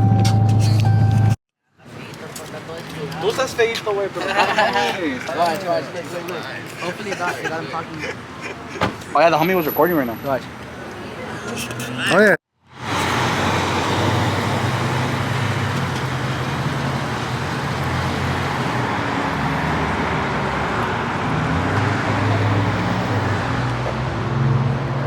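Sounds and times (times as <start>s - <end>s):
tyre and road rush: 0.0s - 25.0s
car engine drone: 12.6s - 24.6s.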